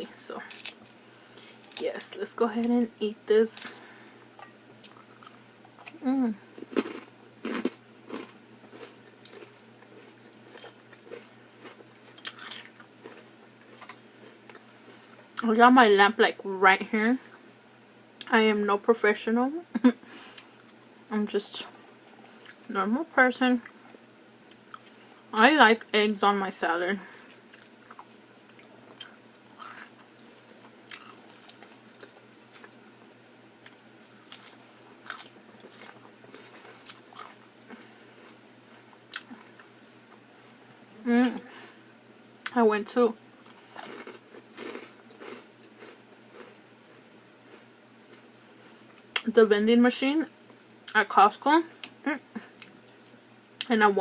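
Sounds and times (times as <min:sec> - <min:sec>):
chewing food: 0:04.4 - 0:15.2, 0:27.2 - 0:32.8, 0:33.6 - 0:39.7, 0:43.4 - 0:49.2.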